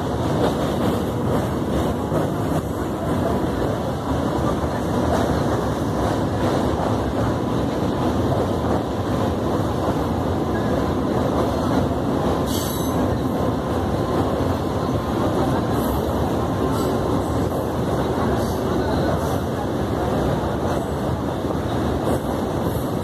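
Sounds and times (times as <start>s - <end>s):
train wheels rumbling and rattling: 0.0s - 23.0s.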